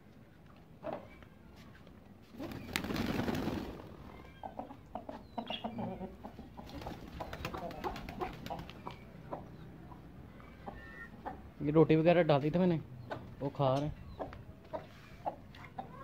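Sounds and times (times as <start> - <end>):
soft bird calls: 0.8 - 11.6, 12.4 - 16.0
bird wings flapping: 2.3 - 4.0, 6.6 - 8.9.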